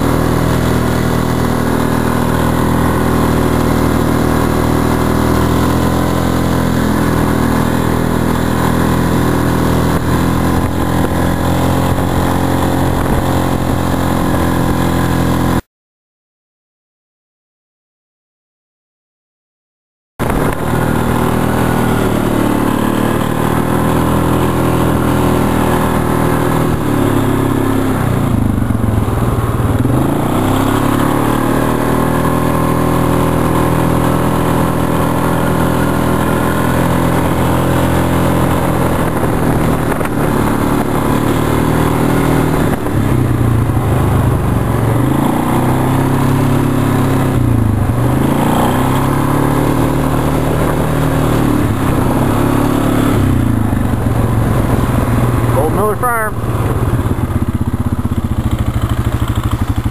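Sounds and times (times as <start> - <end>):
vehicle engine running: 0.0 - 15.6, 20.2 - 59.9.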